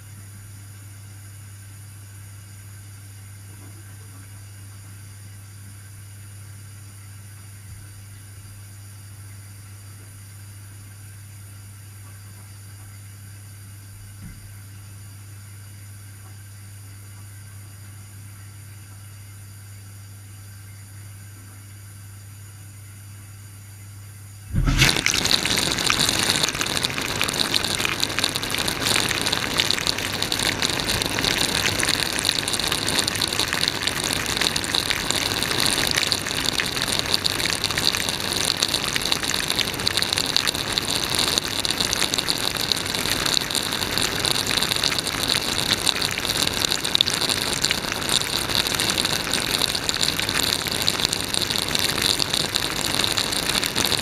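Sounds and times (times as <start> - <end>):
dishwasher spraying water: 24.5 - 54.0.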